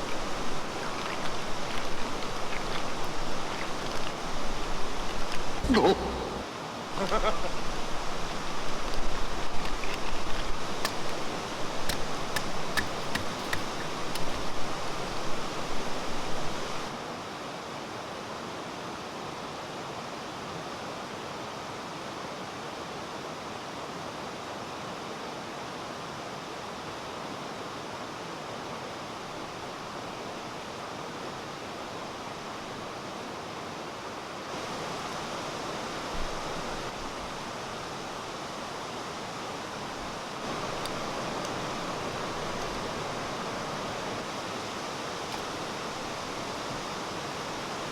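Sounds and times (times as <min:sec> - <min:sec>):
stream rushing over rocks: 0:00.0 - 0:23.7, 0:24.3 - 0:47.9
sharp clicks: 0:09.6 - 0:14.8.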